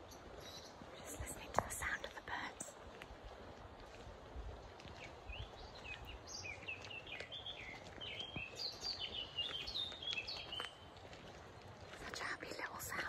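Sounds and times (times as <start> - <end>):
songbird singing: 0.0 - 2.8, 4.8 - 13.0.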